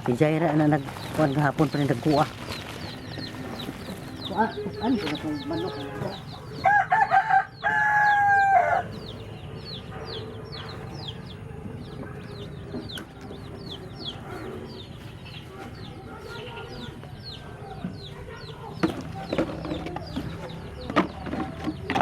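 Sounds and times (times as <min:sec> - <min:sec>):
chicken yard background: 0:00.0 - 0:22.0
rooster crowing: 0:05.4 - 0:09.2.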